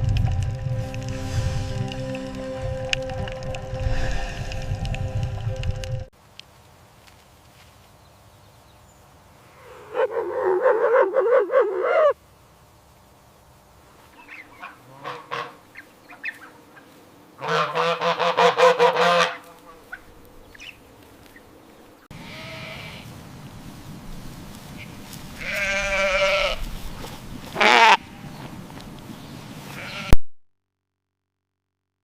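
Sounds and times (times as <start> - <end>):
wavering animal call: 9.6 - 12.2
pulsed honking animal call: 14.4 - 15.6, 17.4 - 19.4.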